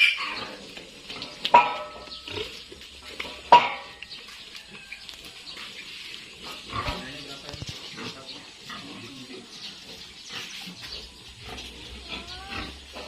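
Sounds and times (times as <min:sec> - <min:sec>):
piglet squealing: 0:11.9 - 0:13.0.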